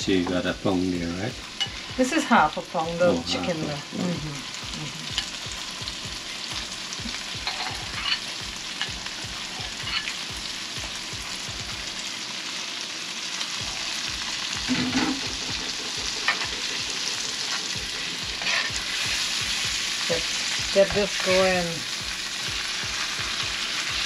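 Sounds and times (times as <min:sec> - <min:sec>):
food sizzling in a pan: 0:00.0 - 0:24.0
utensil scraping a pan: 0:14.7 - 0:16.6, 0:18.4 - 0:18.8.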